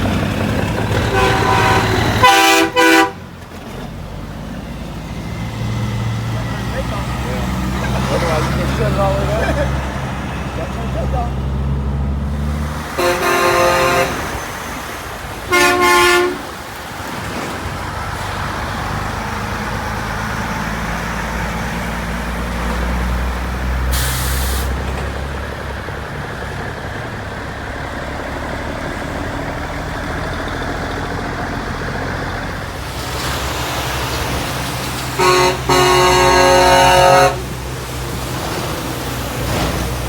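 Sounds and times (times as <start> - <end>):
diesel trucks rumbling: 0.0 - 40.0
truck air horn blasts: 0.9 - 3.4, 12.9 - 14.6, 15.5 - 16.6, 35.1 - 37.6
air brake hiss: 23.9 - 24.8.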